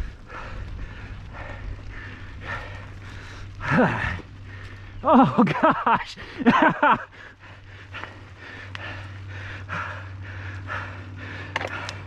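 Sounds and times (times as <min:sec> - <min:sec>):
person panting hard: 0:00.0 - 0:05.0, 0:06.2 - 0:12.0
person groaning: 0:03.6 - 0:04.2.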